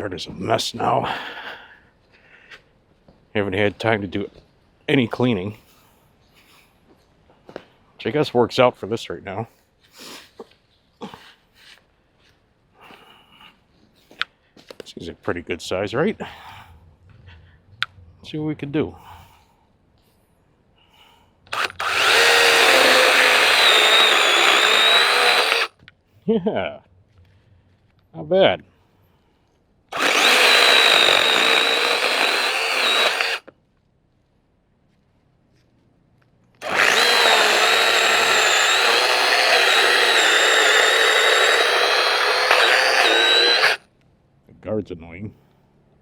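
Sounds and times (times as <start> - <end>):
electric chainsaw cutting branch: 21.5 - 25.7, 29.9 - 33.5, 36.6 - 43.8.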